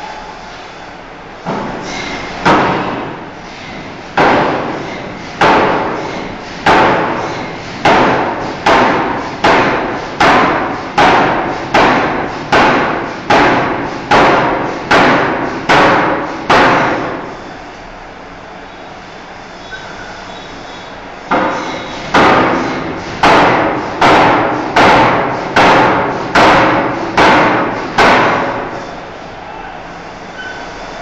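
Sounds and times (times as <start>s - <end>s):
forging hammer striking steel bar: 4.2s - 4.8s, 5.4s - 6.0s, 6.7s - 17.2s, 21.3s - 28.8s.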